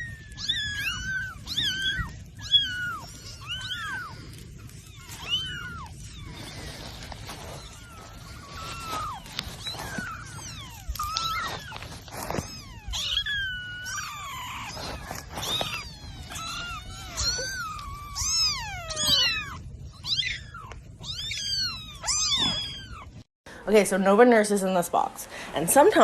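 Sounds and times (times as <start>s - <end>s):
cats meowing: 0.0s - 23.3s.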